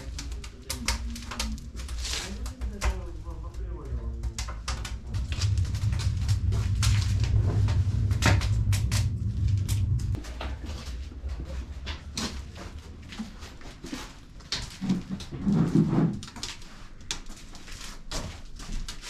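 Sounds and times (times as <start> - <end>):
irregular clicks and light knocks: 0.0 - 10.6
low rumble: 0.0 - 14.8.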